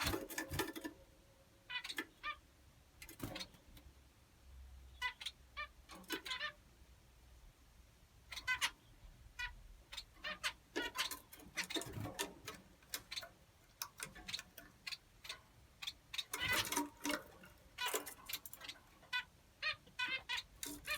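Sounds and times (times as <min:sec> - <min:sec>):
finches chirping: 0:01.6 - 0:03.8, 0:04.8 - 0:06.6, 0:08.2 - 0:20.9.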